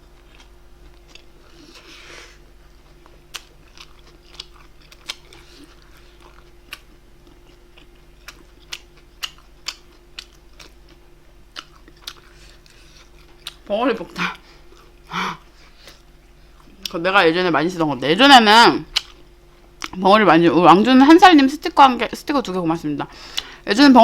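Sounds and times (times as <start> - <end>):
faint steady hum: 0.0 - 24.0
wet chewing clicks and smacks: 2.8 - 13.7, 18.9 - 19.2.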